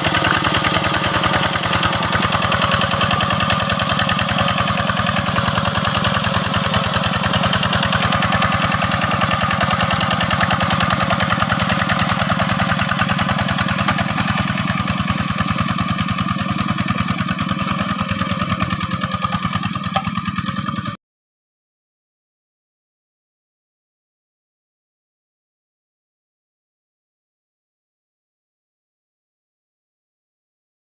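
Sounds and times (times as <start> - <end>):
diesel engine chugging: 0.0 - 21.0.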